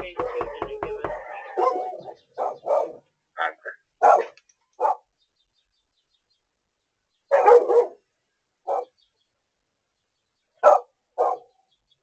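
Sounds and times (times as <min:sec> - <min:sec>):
dog barking: 0:00.2 - 0:03.0, 0:04.0 - 0:05.1, 0:07.3 - 0:08.0, 0:08.7 - 0:09.0, 0:10.6 - 0:11.6.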